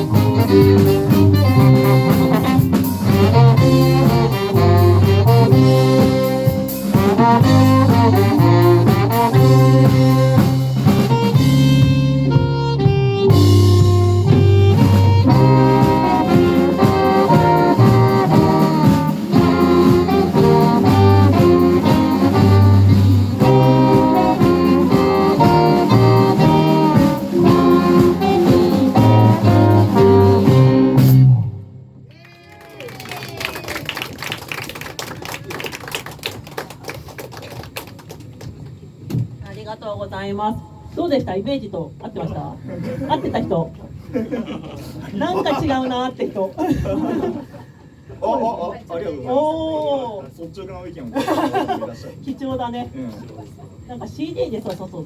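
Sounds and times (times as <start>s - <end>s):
live band playing jazzy pop: 0.0s - 31.6s
saxophone melody: 0.0s - 31.9s.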